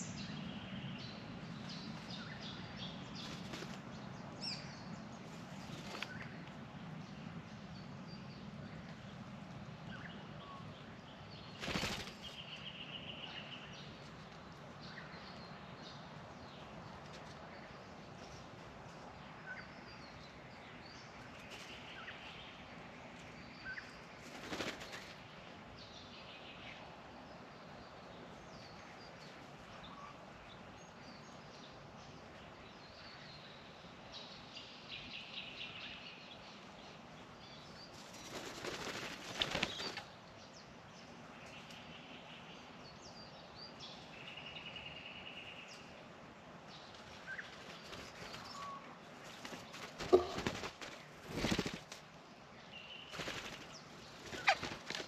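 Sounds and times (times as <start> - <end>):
birds flapping wings: 3.2 - 3.9, 5.3 - 6.3, 11.5 - 12.4, 24.2 - 25.2, 37.9 - 40.1, 46.9 - 52.1, 53.1 - 55.0
bird calls: 46.8 - 51.8, 52.8 - 55.0
rapid repeated bird notes: 47.4 - 52.1, 52.8 - 55.0.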